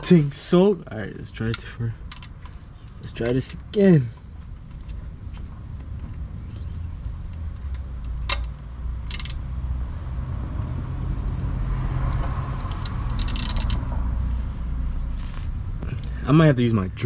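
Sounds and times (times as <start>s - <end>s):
vehicle engine humming: 0.0s - 17.0s
sharp clicks: 7.7s - 9.4s.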